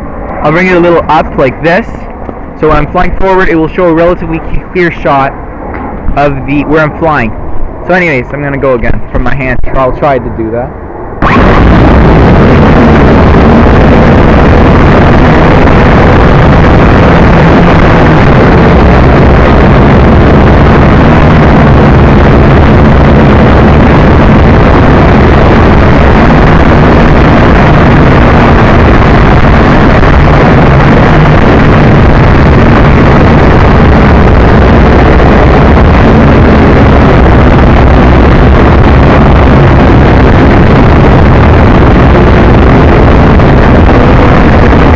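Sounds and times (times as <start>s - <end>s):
wind noise on microphone: 0.0s - 44.9s
quadcopter motors and propellers: 0.3s - 7.3s.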